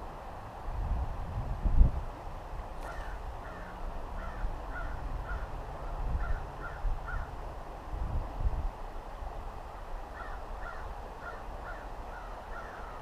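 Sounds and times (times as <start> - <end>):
bird calling: 2.8 - 7.4, 10.1 - 13.0.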